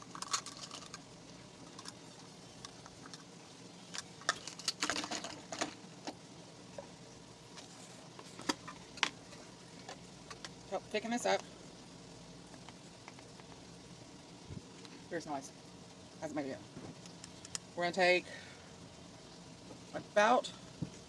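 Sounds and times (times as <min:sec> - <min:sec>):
faint steady hum: 0:00.0 - 0:21.0
kitchen utensils clattering: 0:04.3 - 0:05.8.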